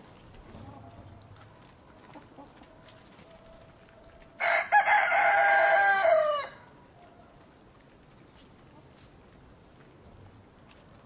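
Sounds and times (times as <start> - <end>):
rooster crowing: 4.4 - 6.7.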